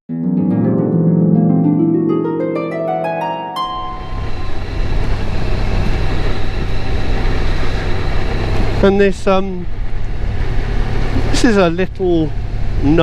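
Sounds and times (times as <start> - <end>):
harp plucking rising notes: 0.1 - 8.8
motorcycle engine running: 3.8 - 13.0.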